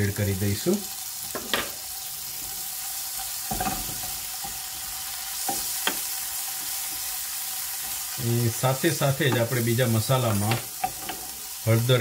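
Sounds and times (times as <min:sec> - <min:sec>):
onions sizzling in oil: 0:00.0 - 0:12.0
spoon scraping and knocking pan: 0:01.2 - 0:02.6, 0:03.2 - 0:07.1, 0:09.2 - 0:11.6.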